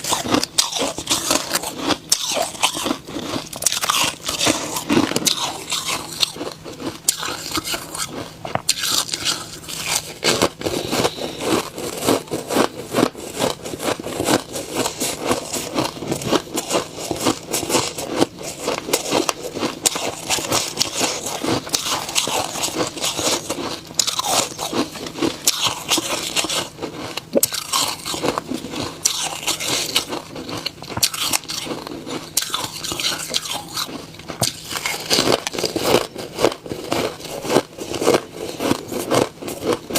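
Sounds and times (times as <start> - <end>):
chewing crunchy ice: 0.0 - 39.9.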